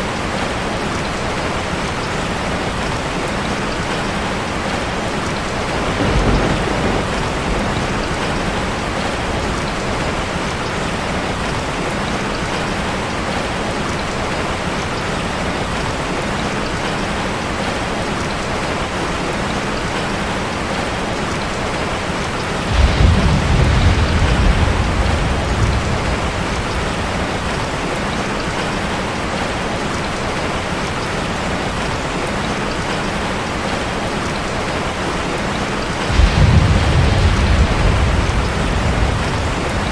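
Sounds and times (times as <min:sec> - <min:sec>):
rain on a metal roof: 0:00.0 - 0:39.9
thunder rumbling: 0:05.4 - 0:10.6, 0:22.6 - 0:28.7, 0:36.0 - 0:39.9.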